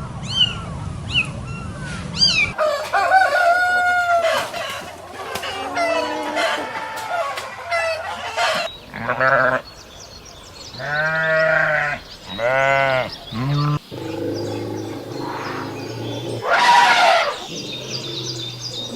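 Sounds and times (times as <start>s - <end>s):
rooster crowing: 2.6s - 4.8s, 13.9s - 18.9s
chickens clucking: 2.6s - 8.7s, 13.3s - 18.9s.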